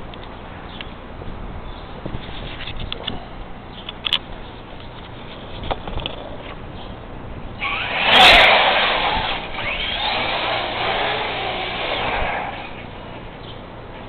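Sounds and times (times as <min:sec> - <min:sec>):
toy truck motor whining: 0:07.6 - 0:13.0.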